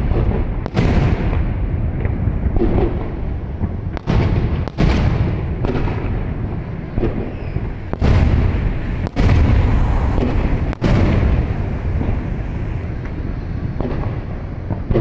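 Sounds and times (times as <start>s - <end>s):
fireworks booming: 0.0s - 15.0s.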